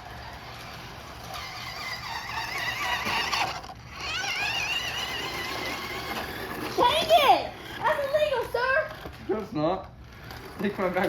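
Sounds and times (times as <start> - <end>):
toy car electric motor whining: 0.0 - 11.0.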